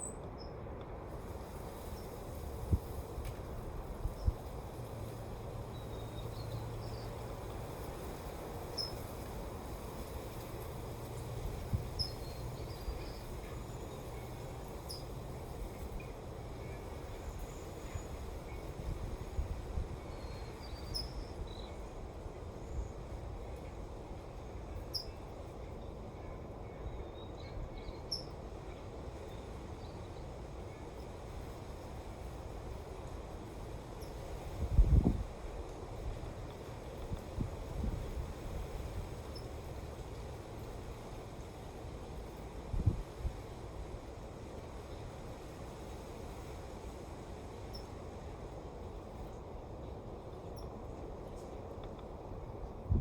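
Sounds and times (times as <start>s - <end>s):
wind rumble on microphone: 1.1s - 25.1s, 29.8s - 49.4s, 50.6s - 53.0s
wind buffets on microphone: 1.2s - 14.2s, 34.0s - 39.4s, 42.6s - 43.9s, 52.6s - 53.0s.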